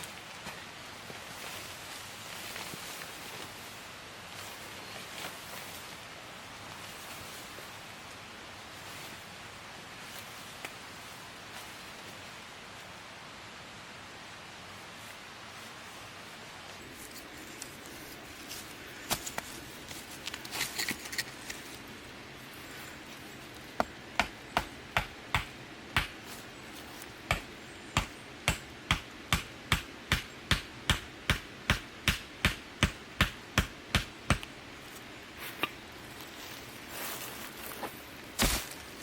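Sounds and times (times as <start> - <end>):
repeated sharp hammering: 24.2 - 26.2, 27.3 - 34.5.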